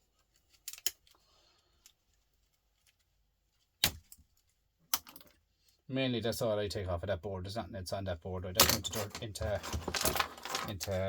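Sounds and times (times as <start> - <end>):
pinchers snipping components: 0.6 - 1.1.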